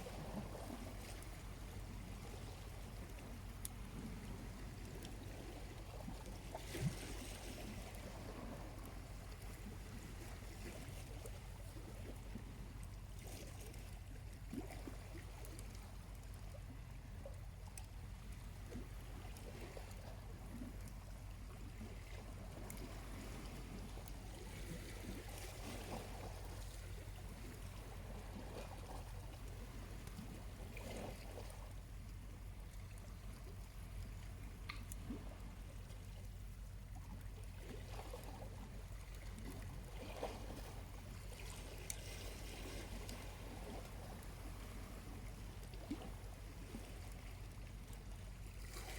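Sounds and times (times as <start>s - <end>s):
small waves lapping on shore: 0.0s - 48.9s
steady low hum: 0.0s - 48.9s.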